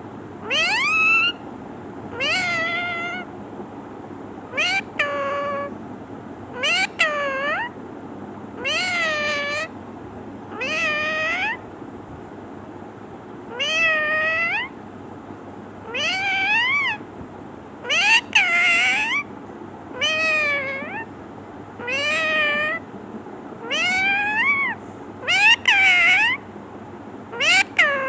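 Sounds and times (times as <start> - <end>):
parrot mimicking cat meow: 0.4 - 1.4, 2.1 - 3.3, 4.5 - 5.8, 6.5 - 7.8, 8.6 - 9.7, 10.5 - 11.6, 13.5 - 14.8, 15.8 - 17.0, 17.8 - 19.3, 19.9 - 21.1, 21.8 - 22.8, 23.6 - 26.5, 27.3 - 28.0.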